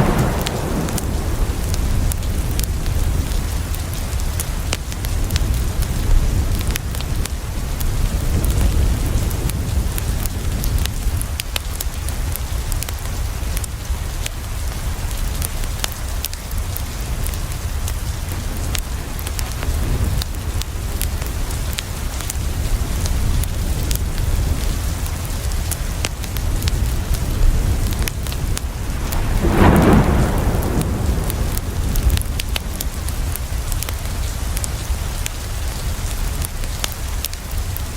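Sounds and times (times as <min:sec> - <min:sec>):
deep low rumble: 0:00.0 - 0:03.5, 0:27.9 - 0:33.5
steady rain: 0:00.0 - 0:37.9
wood fire crackling: 0:00.0 - 0:37.9.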